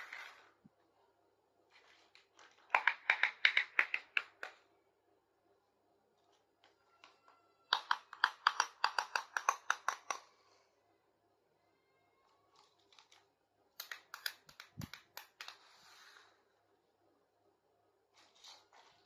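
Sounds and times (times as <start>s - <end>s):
plastic toy pieces clicking: 2.7s - 4.6s, 7.0s - 10.3s, 13.8s - 15.6s.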